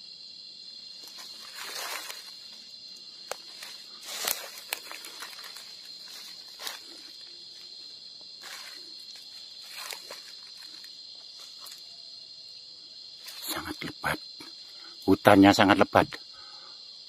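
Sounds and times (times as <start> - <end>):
crickets trilling: 0.0 - 17.0
footsteps rustling through undergrowth: 0.9 - 11.9.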